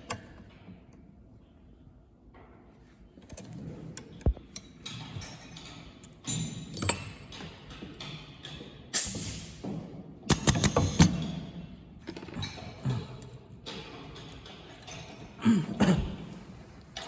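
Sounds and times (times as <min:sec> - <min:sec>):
tools and parts clicking: 0:03.2 - 0:09.5, 0:10.3 - 0:15.4.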